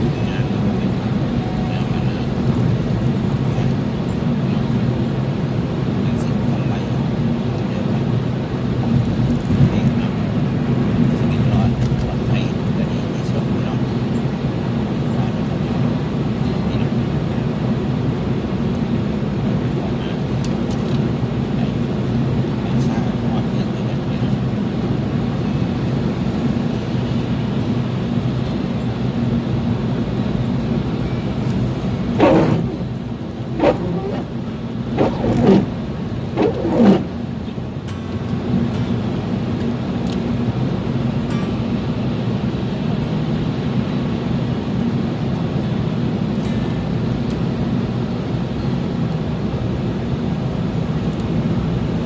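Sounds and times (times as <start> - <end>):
car driving rumble: 0.0 - 52.0
short voice-like sounds: 32.2 - 32.8, 33.6 - 34.3, 35.0 - 35.7, 36.4 - 37.1.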